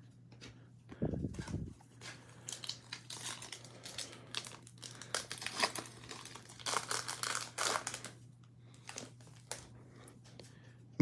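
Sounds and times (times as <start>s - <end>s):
foil wrapper crinkling: 1.4s - 10.1s.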